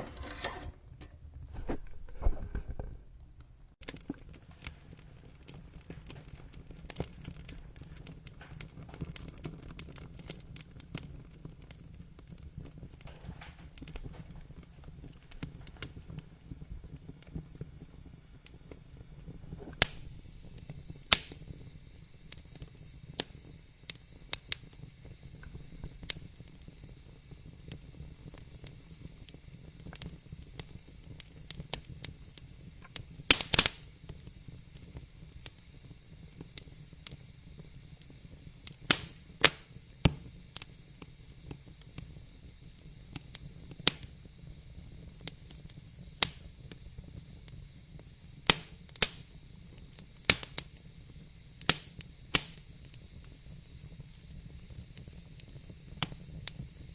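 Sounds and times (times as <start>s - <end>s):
wood fire crackling: 0.0s - 56.9s.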